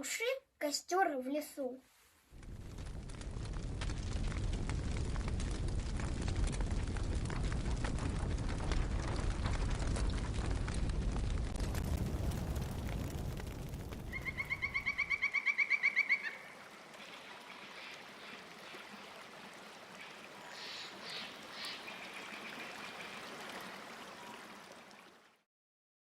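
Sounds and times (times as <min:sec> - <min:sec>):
stream trickling: 0:04.8 - 0:25.5.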